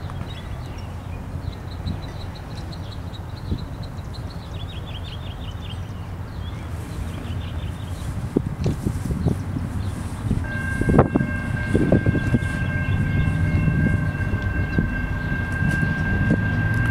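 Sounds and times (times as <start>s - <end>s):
low rumble: 9.3s - 16.9s.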